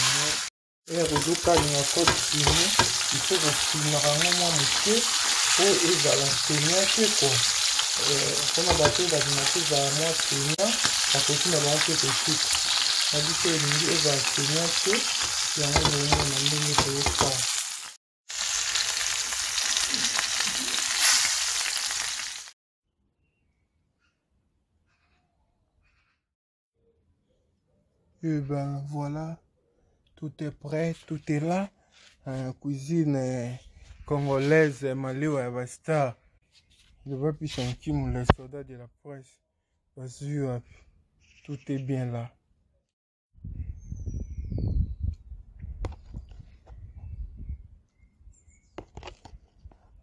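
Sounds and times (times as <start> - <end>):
food sizzling in hot oil: 0.0 - 22.6.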